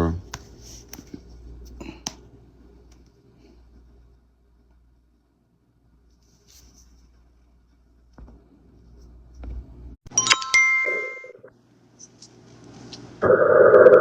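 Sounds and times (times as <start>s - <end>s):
electronic chime: 10.2s - 11.5s.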